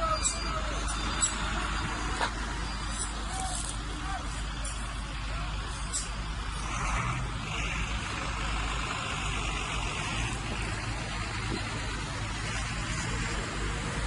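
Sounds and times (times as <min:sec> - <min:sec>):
bulldozer diesel engine rumbling: 0:00.0 - 0:14.0.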